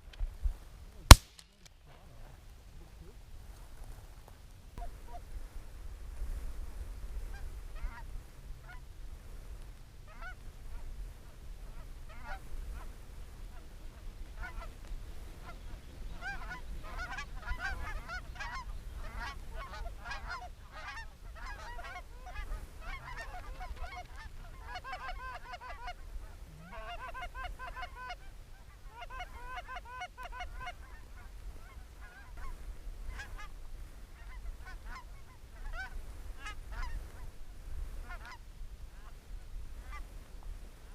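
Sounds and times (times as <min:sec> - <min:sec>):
low wind rumble: 0:01.8 - 0:40.9
geese honking: 0:10.1 - 0:10.4, 0:11.6 - 0:12.8, 0:14.3 - 0:33.5, 0:34.2 - 0:37.3, 0:38.0 - 0:38.4.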